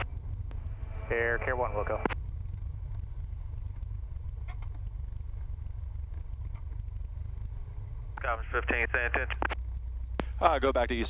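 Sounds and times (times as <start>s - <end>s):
airplane engine rumbling: 0.0s - 11.0s
faint clicks: 2.0s - 10.6s.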